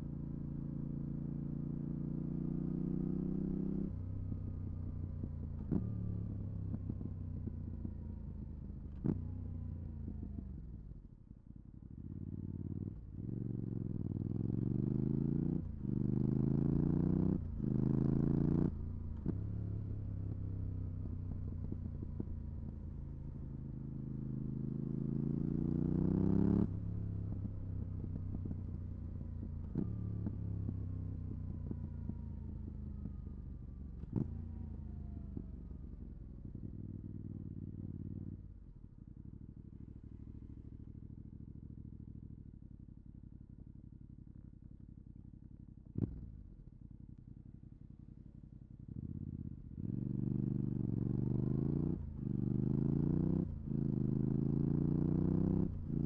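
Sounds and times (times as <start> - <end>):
motorcycle engine accelerating: 11.9 - 42.6, 48.8 - 56.0.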